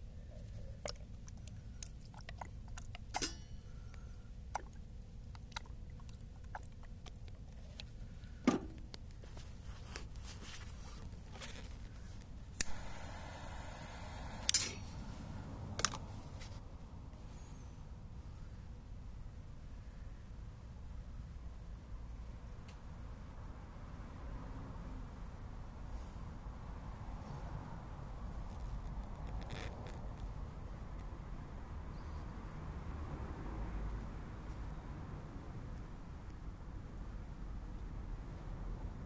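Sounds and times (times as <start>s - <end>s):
low steady rumble: 0.0s - 24.4s.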